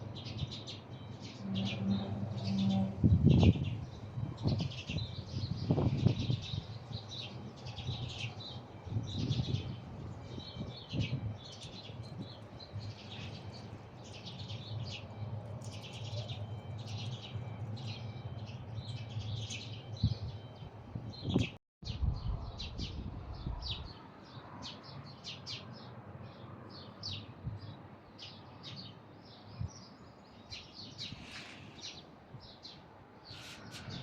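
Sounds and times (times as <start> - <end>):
small birds chirping: 22.6 - 34.0.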